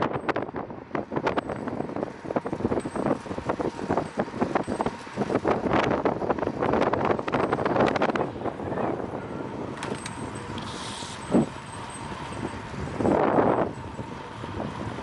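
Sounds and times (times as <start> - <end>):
bicycle rattling clicks: 0.0 - 8.4, 9.6 - 15.0
wind rushing over microphone: 0.0 - 15.0.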